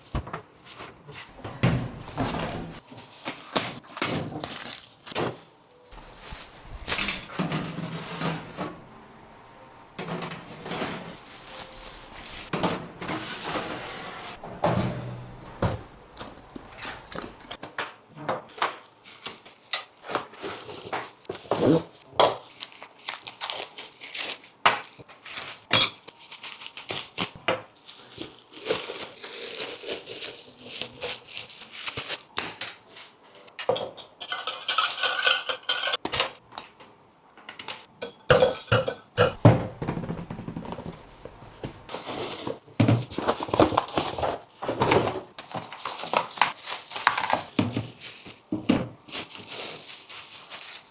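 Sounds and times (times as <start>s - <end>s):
packaging crinkling: 2.8s - 7.3s, 11.2s - 12.5s, 18.5s - 32.6s, 41.9s - 50.9s.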